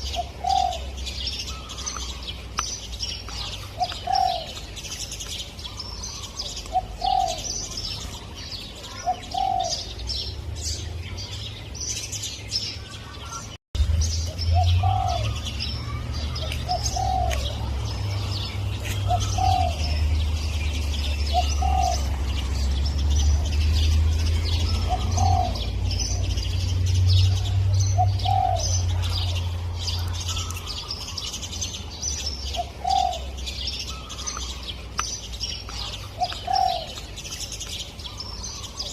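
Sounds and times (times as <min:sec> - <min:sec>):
dove cooing: 0:00.0 - 0:02.2, 0:03.3 - 0:04.7, 0:05.7 - 0:10.1, 0:14.6 - 0:22.7, 0:24.5 - 0:26.4, 0:27.3 - 0:31.2, 0:32.5 - 0:34.6, 0:35.7 - 0:37.1
small birds chirping: 0:00.0 - 0:38.9.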